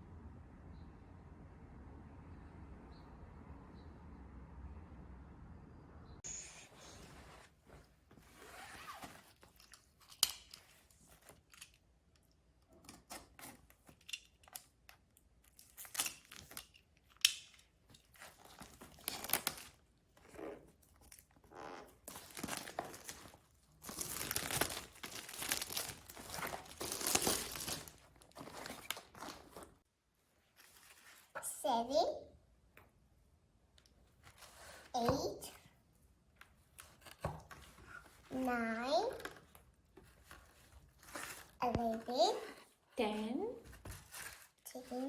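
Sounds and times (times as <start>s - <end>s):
packaging crinkling and tearing: 18.1s - 19.8s, 22.0s - 29.8s.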